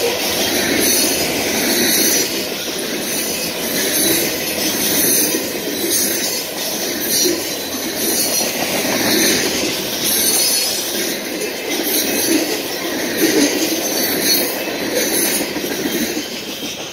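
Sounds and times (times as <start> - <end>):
steel wheels rumbling on rails: 0.0 - 16.9.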